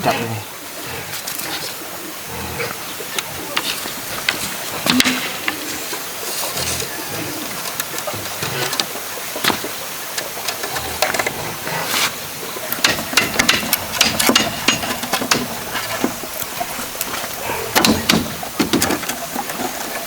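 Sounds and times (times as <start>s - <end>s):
steady hiss: 0.0s - 20.0s
bamboo clicks and knocks: 3.2s - 20.0s.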